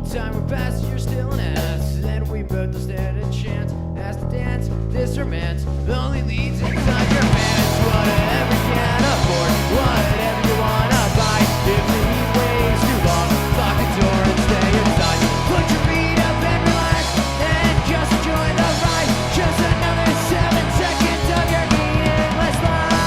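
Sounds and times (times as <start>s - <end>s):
drum kit fast beat: 6.5s - 23.0s
rock band playing live: 6.5s - 23.0s.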